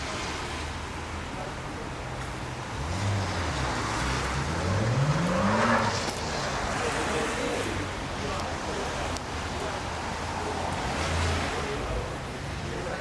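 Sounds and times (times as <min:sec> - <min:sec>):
car engine running and revving: 0:02.6 - 0:07.8.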